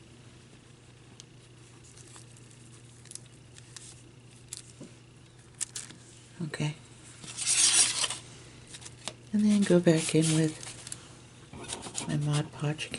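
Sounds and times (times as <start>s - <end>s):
hands handling craft materials: 7.2s - 11.0s.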